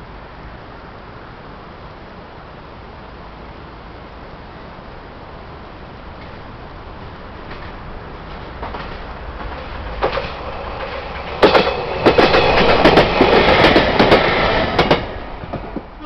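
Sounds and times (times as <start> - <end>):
train rumble: 0.0 - 16.0
wheels clattering over rail joints: 6.1 - 16.0.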